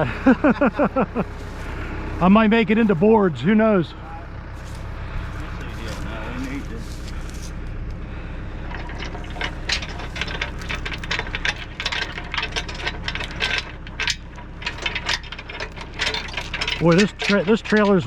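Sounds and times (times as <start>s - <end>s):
low engine hum: 0.0s - 18.0s
small metallic clinks and rattles: 8.6s - 18.0s.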